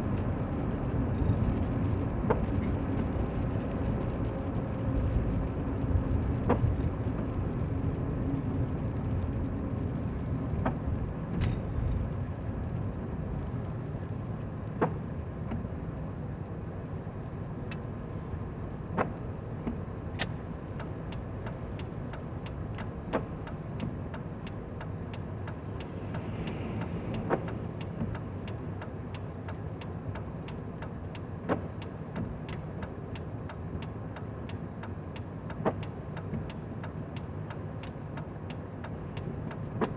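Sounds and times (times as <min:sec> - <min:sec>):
turn signal ticking: 0:17.6 - 0:18.0, 0:18.9 - 0:39.9.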